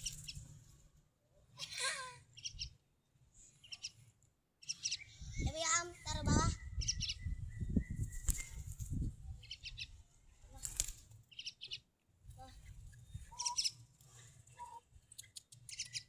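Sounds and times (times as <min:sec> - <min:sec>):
bird chirping: 0:00.0 - 0:00.5, 0:01.6 - 0:02.8, 0:03.4 - 0:10.0, 0:11.2 - 0:11.9, 0:12.5 - 0:16.0
bird fluttering wings: 0:00.0 - 0:00.8, 0:07.8 - 0:09.2, 0:10.5 - 0:11.2.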